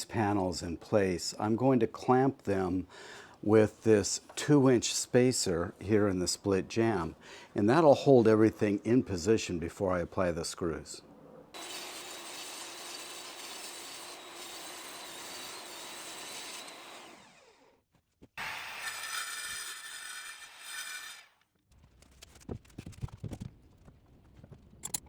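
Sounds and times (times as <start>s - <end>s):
power drill driving screws: 11.6s - 17.6s.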